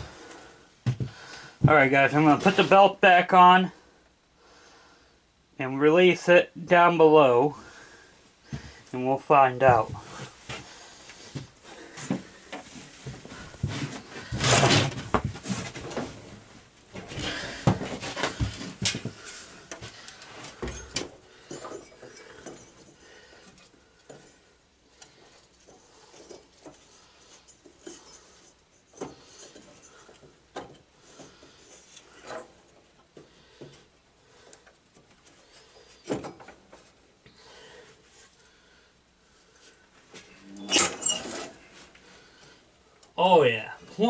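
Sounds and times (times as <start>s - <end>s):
metal parts clinking and knocking: 20.6s - 24.4s.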